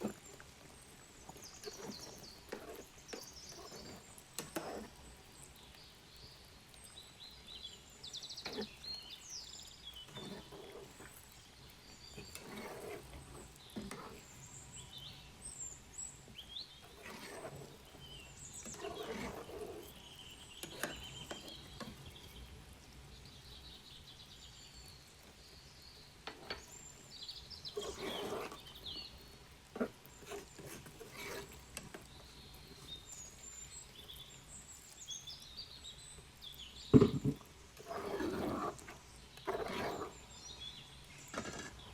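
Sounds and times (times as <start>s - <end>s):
small birds chirping: 0.0s - 41.9s
sharp knocks and clatter: 36.9s - 37.5s.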